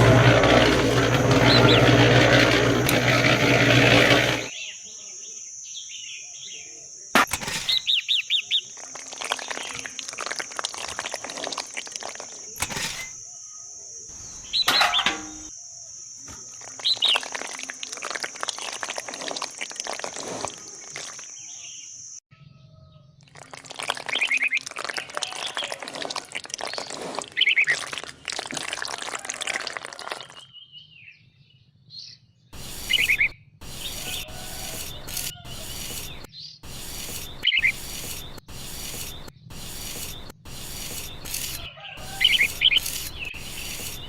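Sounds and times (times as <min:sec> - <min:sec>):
loud rumbling noise: 0:00.0 - 0:04.5.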